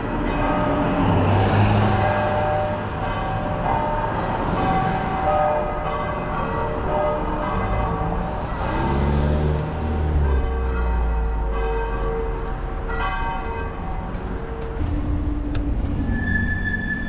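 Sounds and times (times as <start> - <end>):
car rumbling in motion: 7.4 - 17.0.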